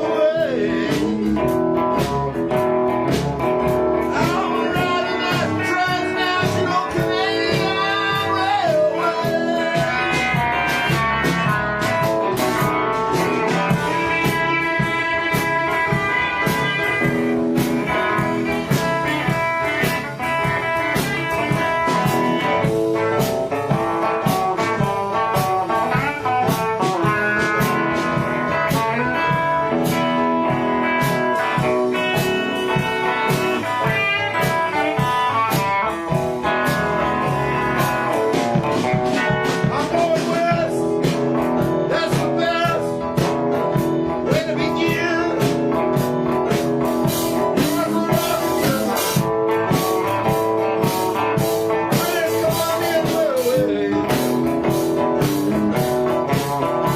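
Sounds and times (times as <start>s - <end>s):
blues guitar: 0.0s - 56.9s
drum kit beat: 0.0s - 56.9s.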